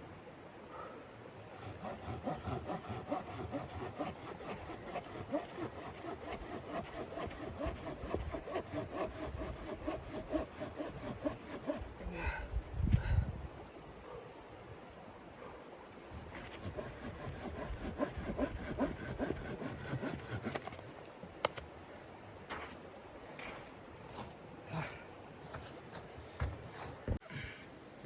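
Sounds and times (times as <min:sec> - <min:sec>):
hand saw cutting wood: 0:01.5 - 0:11.9, 0:16.1 - 0:20.9.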